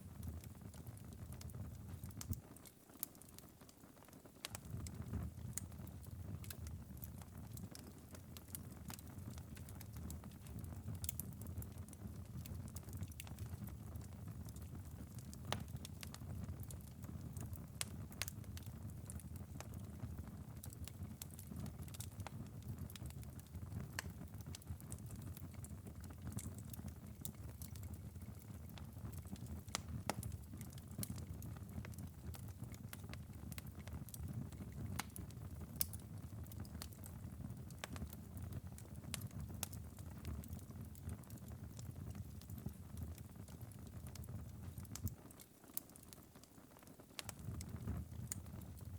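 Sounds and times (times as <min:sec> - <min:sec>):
fire crackling and popping: 0:00.0 - 0:48.9
fire embers rumbling: 0:04.4 - 0:48.9.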